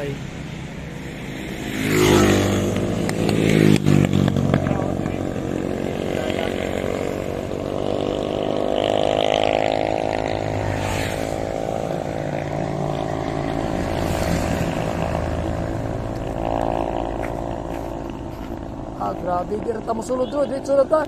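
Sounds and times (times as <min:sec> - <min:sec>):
road and wind noise: 0:00.0 - 0:21.0
vehicle engine running: 0:10.2 - 0:20.6.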